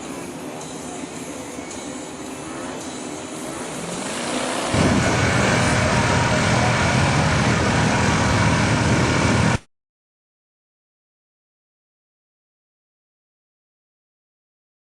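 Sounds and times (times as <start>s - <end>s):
off-road vehicle engine revving: 3.5s - 9.6s.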